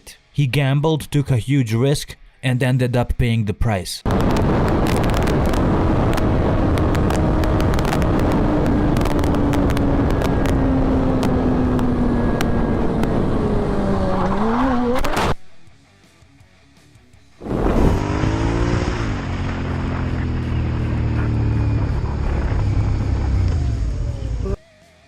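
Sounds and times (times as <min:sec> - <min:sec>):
sharp clicks: 0:04.1 - 0:13.2
motorcycle engine: 0:04.1 - 0:15.4, 0:17.4 - 0:24.6
wind roar: 0:04.1 - 0:15.4, 0:17.4 - 0:24.6.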